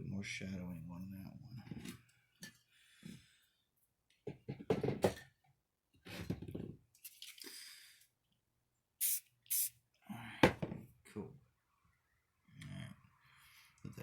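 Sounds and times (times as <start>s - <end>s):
knocks and handling clatter: 4.3s - 5.4s
spray paint can hissing: 9.0s - 9.7s.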